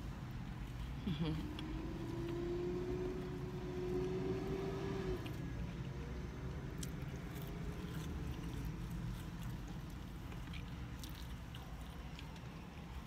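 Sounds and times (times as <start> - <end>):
chewing french fries: 5.1 - 13.0.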